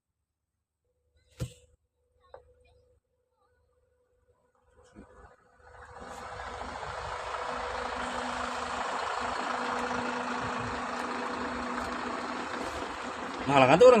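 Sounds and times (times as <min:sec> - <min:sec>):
engine running loud: 0:05.0 - 0:14.0.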